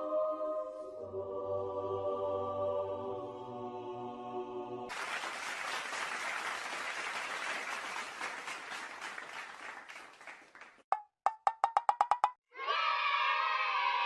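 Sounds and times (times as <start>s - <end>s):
crowd applause: 4.9s - 10.8s.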